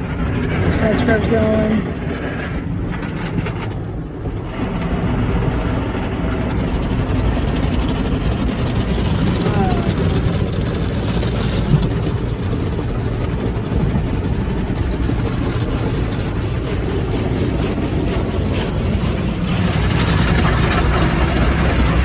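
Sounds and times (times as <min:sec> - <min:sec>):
car wash brushes and water rumble: 0:00.0 - 0:22.0.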